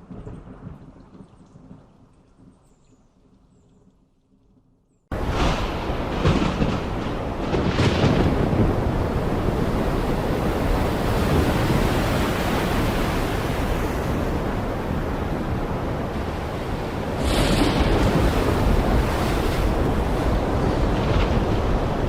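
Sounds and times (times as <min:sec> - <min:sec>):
heavy rain falling: 0:05.1 - 0:12.9.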